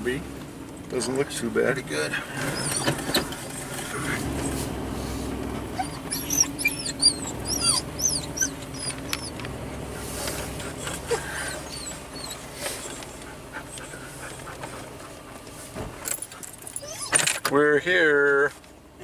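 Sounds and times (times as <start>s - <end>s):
truck engine hum: 0.0s - 19.0s
dog whining: 2.4s - 3.4s, 5.5s - 15.4s, 16.6s - 17.4s.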